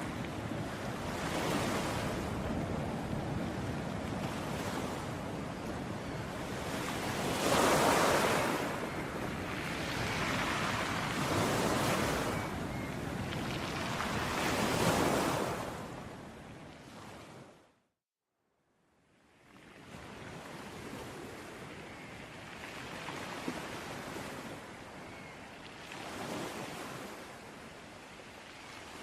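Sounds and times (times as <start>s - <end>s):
sea waves washing on shore: 0.0s - 17.0s.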